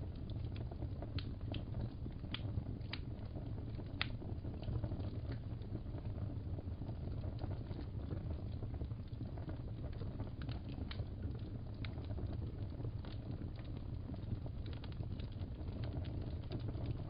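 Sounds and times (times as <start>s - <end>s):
fire crackling: 0.0s - 17.0s
sharp pops and snaps: 0.1s - 5.7s, 9.0s - 17.0s.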